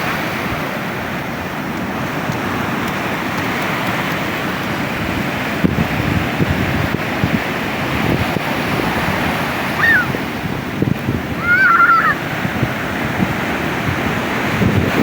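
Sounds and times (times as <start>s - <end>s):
ocean surf washing: 0.0s - 15.0s
wind buffeting microphone: 0.0s - 15.0s
high-pitched cries: 9.8s - 10.2s, 11.4s - 12.2s.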